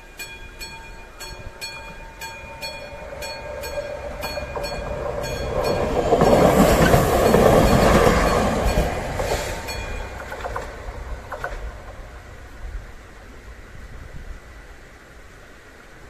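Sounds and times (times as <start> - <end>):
level crossing bell ringing: 0.0 - 5.9
diesel railcar passing: 0.0 - 16.0.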